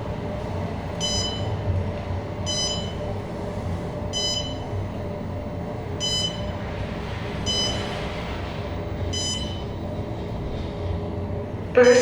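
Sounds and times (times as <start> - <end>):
elevator cab humming: 0.0 - 12.0
elevator electronic beep: 0.9 - 1.7, 2.4 - 3.2, 4.1 - 5.1, 5.9 - 6.7, 7.4 - 10.0, 11.8 - 12.0.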